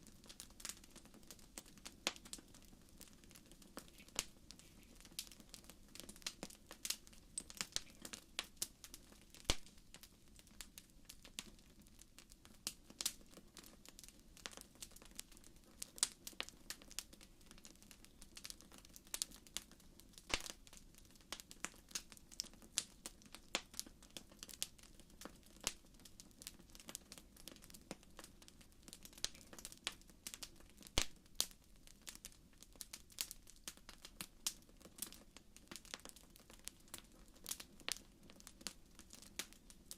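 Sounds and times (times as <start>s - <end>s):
faint hiss: 0.0s - 16.2s
wood fire crackling: 0.0s - 39.9s.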